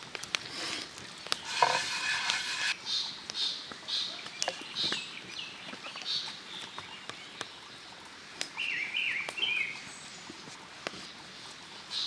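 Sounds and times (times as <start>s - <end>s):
small birds singing: 2.6s - 7.9s, 8.5s - 10.3s.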